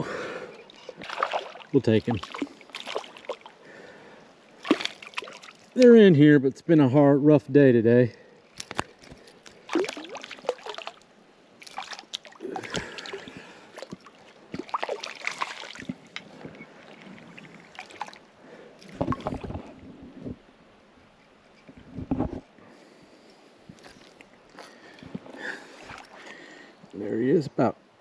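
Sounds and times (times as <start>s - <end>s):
creek water splashing: 0.0s - 6.2s, 8.6s - 19.7s, 23.8s - 26.7s.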